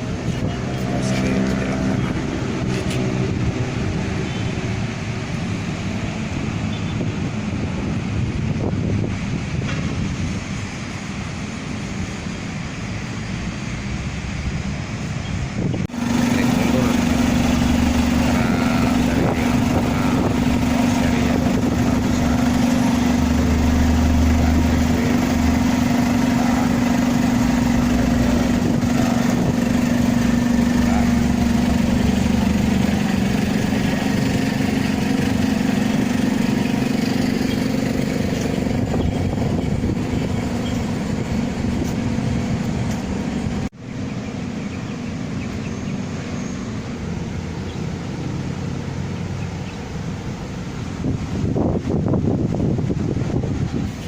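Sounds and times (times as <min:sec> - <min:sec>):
bus engine humming: 0:00.0 - 0:54.0
traffic noise: 0:00.0 - 0:54.0.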